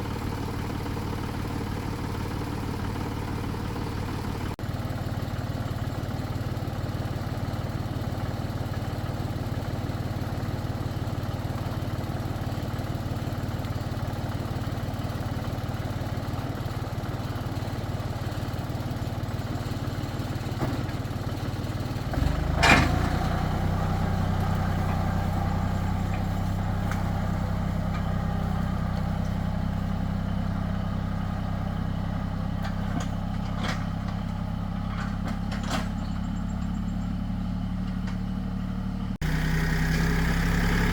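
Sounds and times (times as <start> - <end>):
tractor engine running: 0.0 - 40.9
loud clunk: 22.5 - 23.2.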